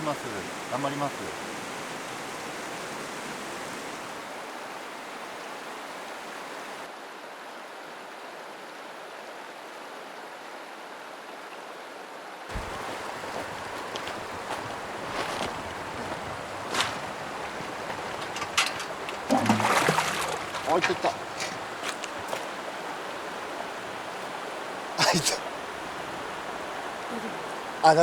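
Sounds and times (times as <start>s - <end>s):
mountain stream flowing: 0.0s - 28.0s.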